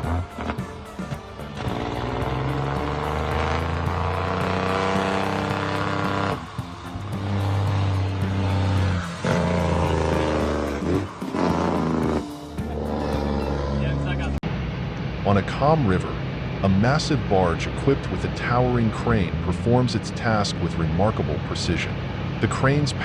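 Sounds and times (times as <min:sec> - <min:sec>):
music with steady beat and low chords: 0:00.0 - 0:13.8.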